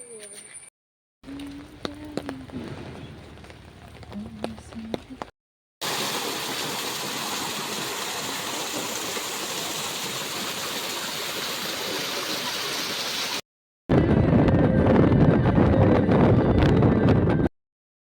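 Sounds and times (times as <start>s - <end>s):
rushing water: 5.8s - 13.4s
wind buffeting microphone: 13.9s - 17.5s.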